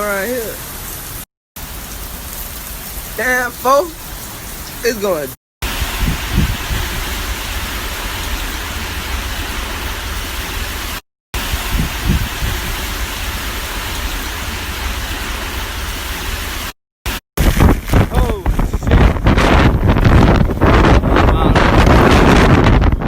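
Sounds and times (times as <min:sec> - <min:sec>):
driving rain hiss: 0:00.0 - 0:22.7
wind buffeting microphone: 0:05.6 - 0:10.8, 0:11.4 - 0:16.2, 0:17.4 - 0:23.0.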